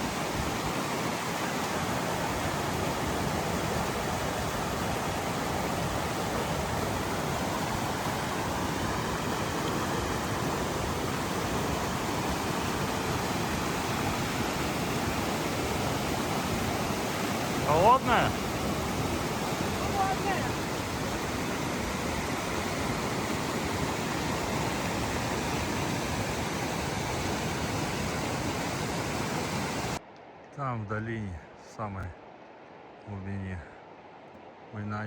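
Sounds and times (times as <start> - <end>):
mountain stream rushing: 0.0 - 31.0.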